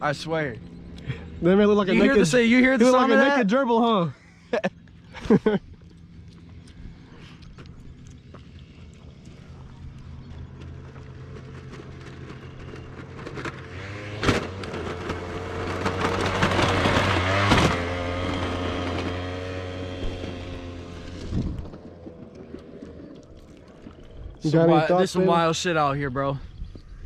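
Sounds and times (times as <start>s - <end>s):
moped engine passing: 4.8s - 25.8s.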